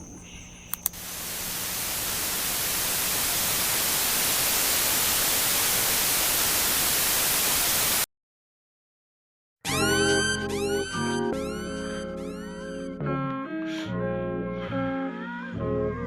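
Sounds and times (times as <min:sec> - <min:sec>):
static-like white noise hiss: 0:00.0 - 0:08.0
music: 0:09.6 - 0:16.0.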